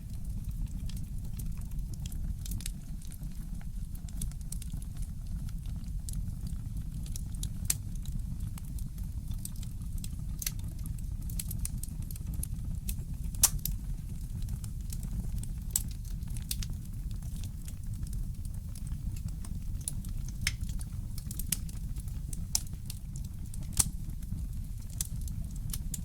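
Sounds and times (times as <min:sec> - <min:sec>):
wood fire crackling: 0:00.0 - 0:26.0
steady low rumble: 0:13.1 - 0:26.0.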